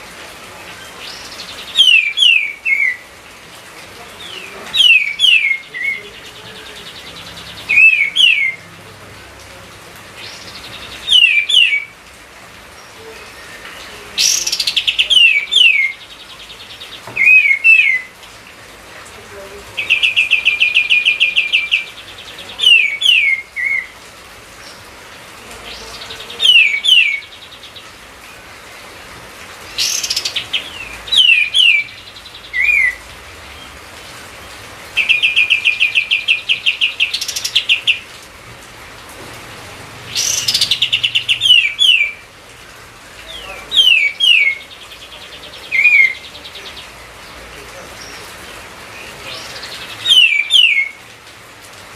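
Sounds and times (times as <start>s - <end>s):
songbird trilling and whistling: 0.8s - 3.0s, 4.2s - 8.6s, 10.2s - 11.9s, 12.8s - 18.1s, 19.8s - 23.9s, 25.7s - 27.8s, 29.7s - 33.0s, 35.0s - 38.1s, 40.1s - 42.2s, 43.3s - 46.9s, 49.0s - 51.0s.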